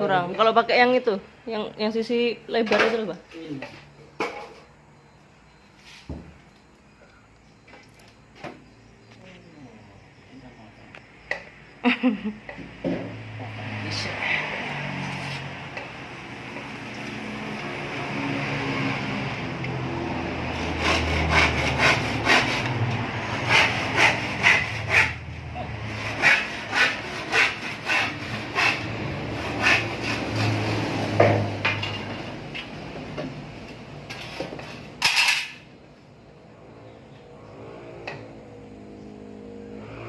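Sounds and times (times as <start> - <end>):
hand tool scraping: 20.5 - 25.2, 25.8 - 31.0, 34.1 - 35.6.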